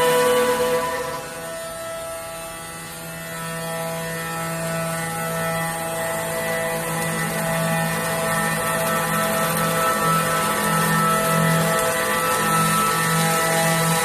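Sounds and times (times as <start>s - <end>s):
cutting hiss: 0.0s - 2.6s
router machine whine: 0.0s - 14.0s.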